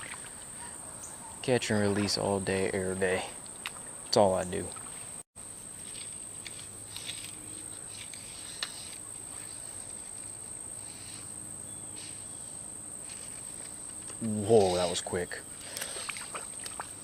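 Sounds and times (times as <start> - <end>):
insects trilling: 0.0 - 17.0
faint rustles: 4.9 - 15.0.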